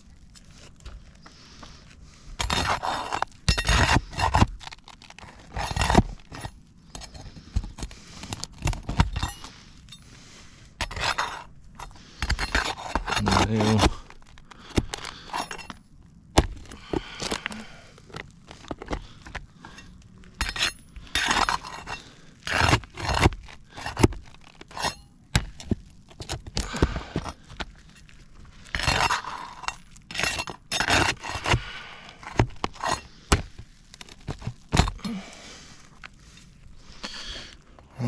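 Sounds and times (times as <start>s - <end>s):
pry bar scraping shingles: 0.4s - 15.8s, 16.4s - 37.5s.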